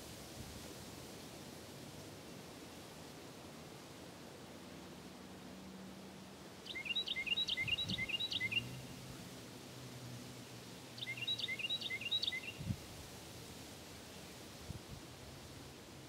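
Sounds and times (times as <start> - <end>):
songbird singing: 6.6 - 9.1, 10.8 - 12.8.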